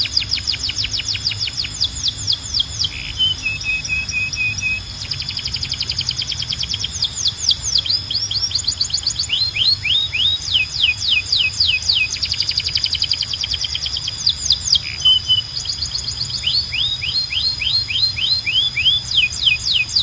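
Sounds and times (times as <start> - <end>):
canary singing trills and whistles: 0.0 - 20.0.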